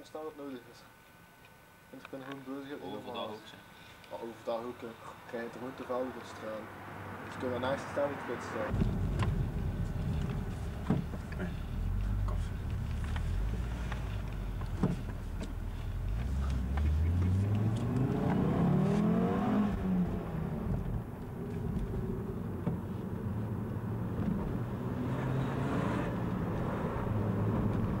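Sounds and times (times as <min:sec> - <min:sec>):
road noise: 0:03.6 - 0:28.0
car engine heard from cabin: 0:08.5 - 0:28.0.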